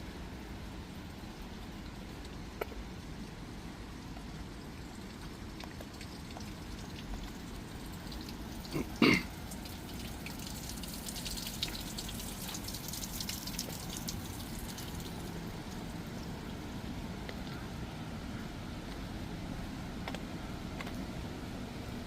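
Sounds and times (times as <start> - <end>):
rain falling: 0.0 - 20.6.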